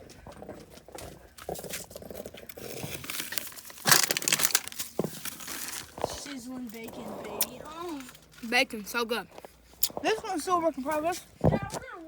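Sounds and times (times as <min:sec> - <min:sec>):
crackling crinkling clicks: 0:01.7 - 0:08.4.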